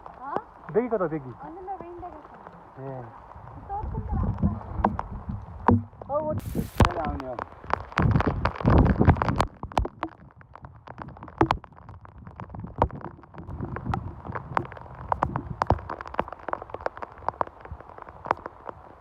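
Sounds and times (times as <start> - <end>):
rain falling: 0.0 - 19.0
drops striking a hard surface: 4.8 - 7.4.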